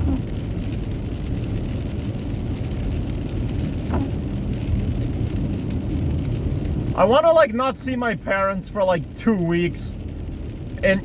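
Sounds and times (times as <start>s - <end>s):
engine and tyre rumble: 0.0s - 11.0s
hiss of rain: 0.0s - 11.0s.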